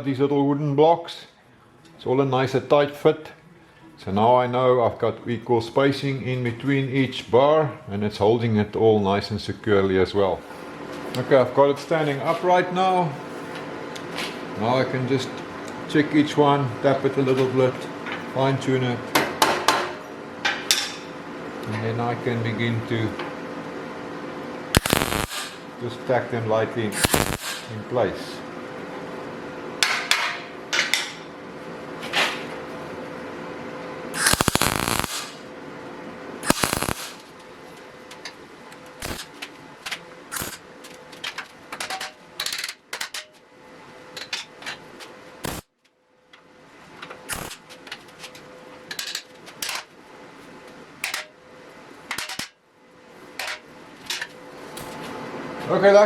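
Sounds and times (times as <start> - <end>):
faint steady hum: 20.1 - 56.0
welding arc bursts: 24.7 - 25.8, 26.9 - 27.8, 34.2 - 35.5, 36.4 - 37.4, 39.0 - 39.4, 40.3 - 40.7, 45.4 - 45.7, 47.3 - 47.7.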